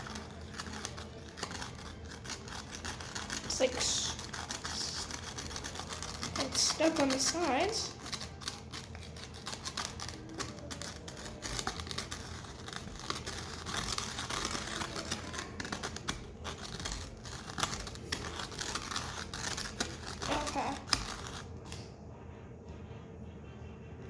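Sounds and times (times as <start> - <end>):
stick stirring sticky slime: 0.0 - 21.9.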